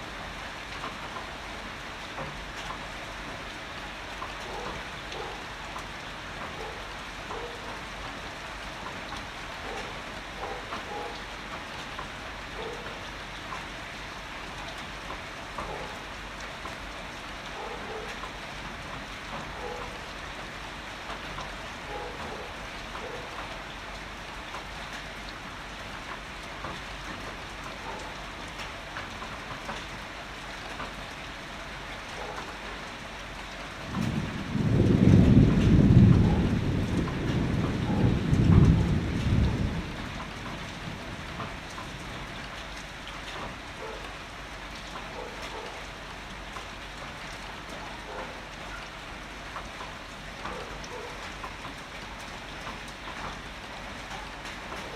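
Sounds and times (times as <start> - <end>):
heavy rain falling: 0.0 - 54.9
low thunder rumble: 33.9 - 42.3.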